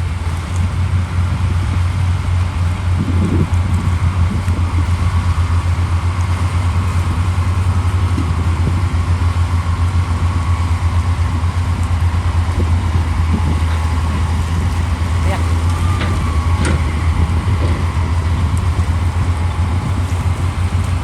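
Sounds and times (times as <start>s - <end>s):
faint steady whine: 0.0s - 21.0s
heavy diesel engine running: 0.0s - 21.0s.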